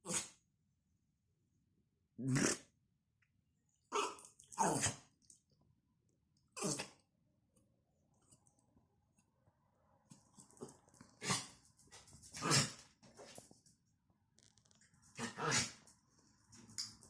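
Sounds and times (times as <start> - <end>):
dog sneezing: 11.2 - 11.5.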